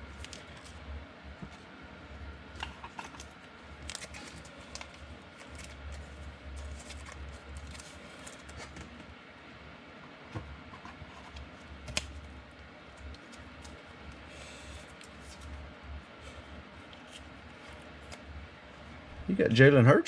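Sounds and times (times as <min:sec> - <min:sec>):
steady low hum: 0:00.0 - 0:20.0
cards clicking and rustling: 0:02.6 - 0:09.0, 0:13.0 - 0:13.8.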